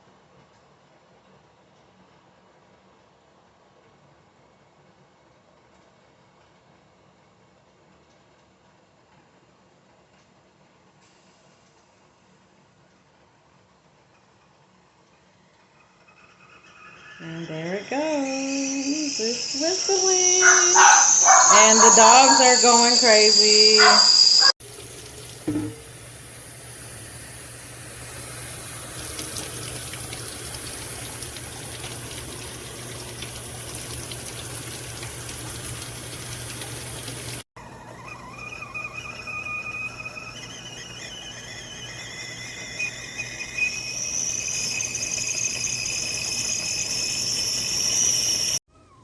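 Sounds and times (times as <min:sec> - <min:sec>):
kettle whistling shrilly: 0:16.2 - 0:49.0
kettle hissing as it heats: 0:17.8 - 0:37.4, 0:41.4 - 0:48.6.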